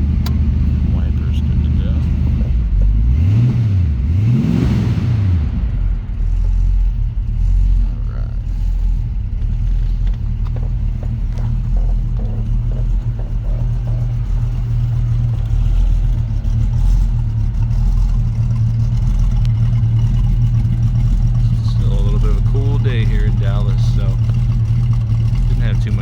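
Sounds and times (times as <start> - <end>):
car engine idling: 0.0 - 26.0
faint even ticking: 7.9 - 26.0.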